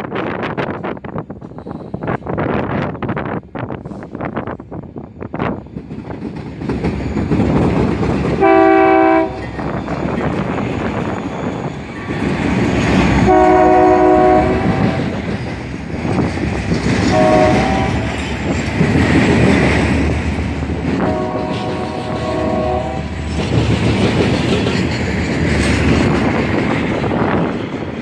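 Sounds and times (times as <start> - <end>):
diesel locomotive engine rumbling: 0.0 - 28.0
train wheel and rail noise: 0.0 - 28.0
train horn blasts: 8.4 - 9.6, 13.2 - 15.2, 17.0 - 18.2, 21.0 - 23.3.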